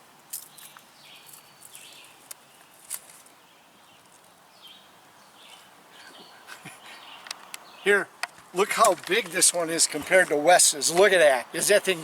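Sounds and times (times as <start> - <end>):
bird chirps: 0.4 - 8.1
handling clicks and taps: 8.2 - 10.2.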